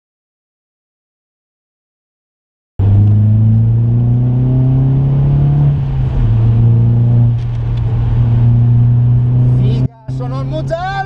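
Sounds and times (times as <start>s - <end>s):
car engine accelerating: 2.8s - 11.0s.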